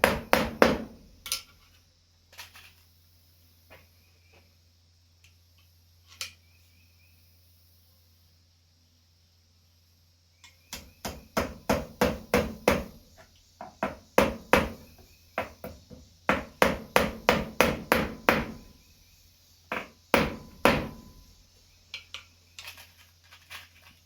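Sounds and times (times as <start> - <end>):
hammer tapping nails: 0.0 - 1.0, 10.7 - 13.0, 13.6 - 14.8, 15.4 - 18.7, 19.7 - 21.1.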